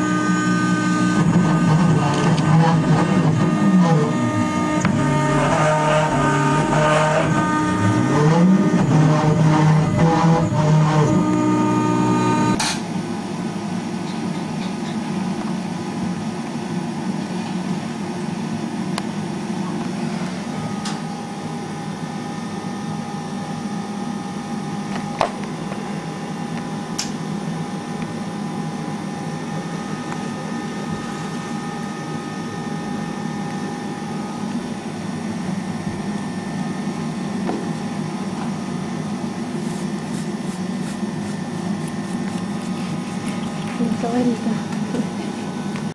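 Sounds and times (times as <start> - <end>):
wood router machine whirr: 0.0 - 12.6, 36.5 - 45.9.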